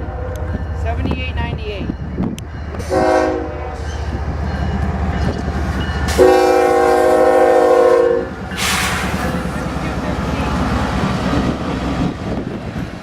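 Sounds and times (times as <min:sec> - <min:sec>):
diesel locomotive rumbling past: 0:00.0 - 0:13.0
locomotive air horn: 0:02.8 - 0:03.7, 0:06.1 - 0:09.2.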